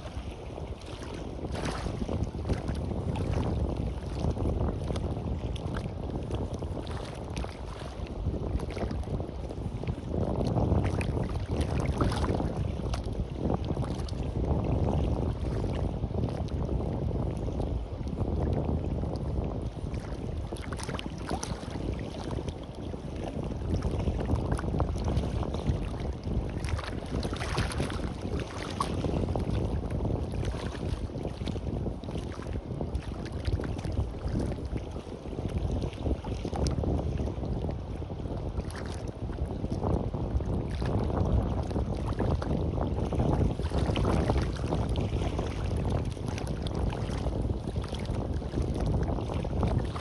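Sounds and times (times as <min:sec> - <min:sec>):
sea waves washing onto beach: 0:00.0 - 0:10.2
wind rumbling on microphone: 0:00.0 - 0:50.0.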